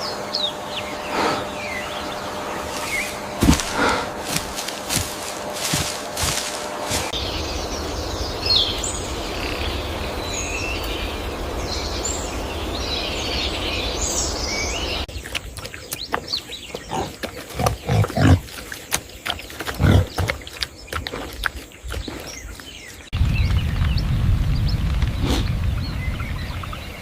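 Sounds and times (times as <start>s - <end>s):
outdoor noise: 0.0s - 27.0s
pig grunting and snorting: 3.4s - 4.4s, 15.6s - 22.4s.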